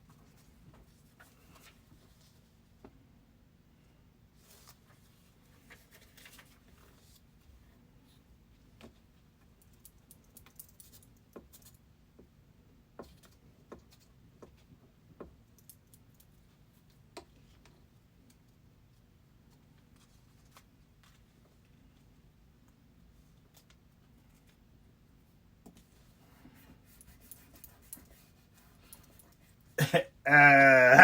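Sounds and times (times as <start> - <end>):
faint clicks and handling noises: 4.5 - 24.8, 25.5 - 29.6.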